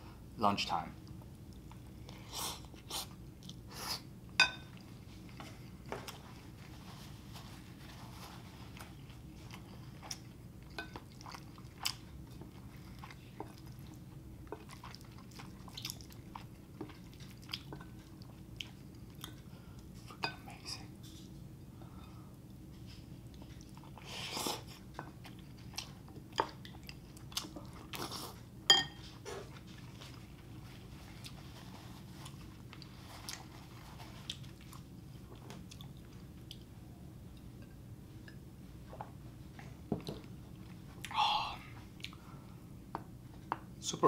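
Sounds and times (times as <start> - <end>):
person chewing: 8.7 - 20.0, 23.2 - 28.4, 29.3 - 36.7
clink against a bowl: 28.7 - 29.0.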